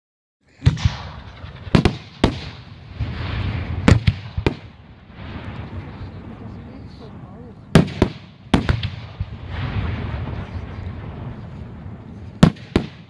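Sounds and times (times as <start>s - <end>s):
firework shells bursting: 0.6s - 5.8s.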